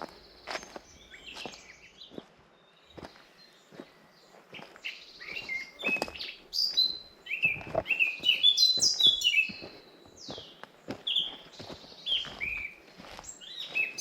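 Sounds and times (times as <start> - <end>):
footsteps on forest path: 0.0 - 14.0
songbird singing: 0.0 - 14.0.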